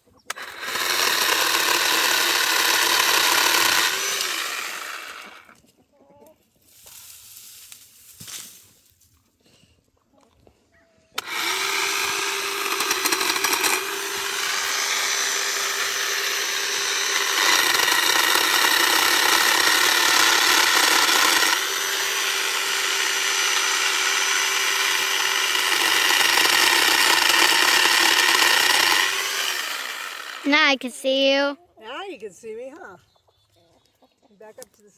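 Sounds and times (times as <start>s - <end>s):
electric chainsaw whining: 0.3s - 5.6s, 11.2s - 31.5s.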